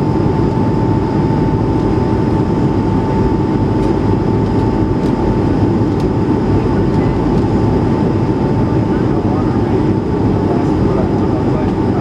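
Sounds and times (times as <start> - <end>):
airplane cabin airflow roar: 0.0 - 12.0
fan whine: 0.0 - 12.0.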